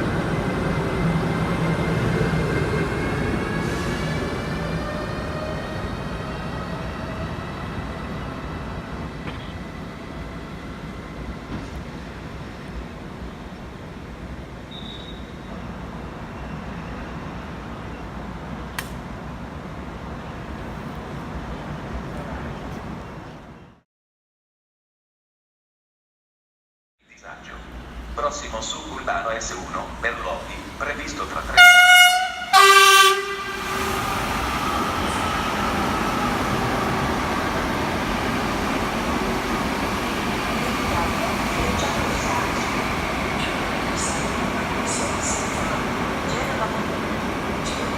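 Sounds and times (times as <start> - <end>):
train wheels rumbling on rail: 0.0 - 23.4, 27.6 - 47.9
sharp click of train: 9.2 - 9.6, 11.5 - 11.8, 18.7 - 19.1
train horn low note: 31.6 - 34.0.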